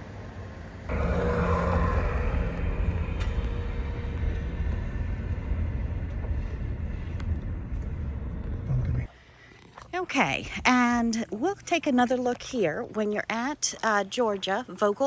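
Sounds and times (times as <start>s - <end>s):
engine rumbling steadily: 0.9s - 9.1s.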